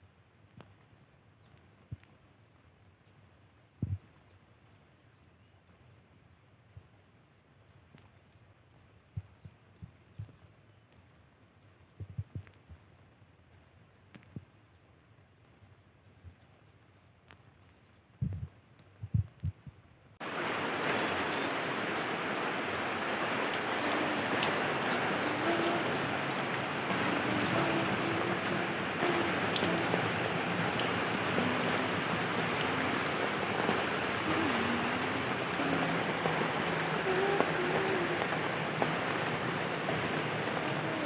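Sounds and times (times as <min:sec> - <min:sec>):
soft low thumps: 0:03.8 - 0:04.0, 0:12.0 - 0:12.8, 0:18.2 - 0:19.8
heavy rain falling: 0:20.2 - 0:41.0.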